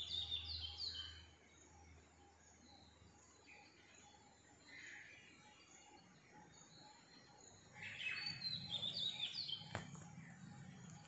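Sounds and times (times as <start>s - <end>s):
bird twittering: 7.8s - 11.0s.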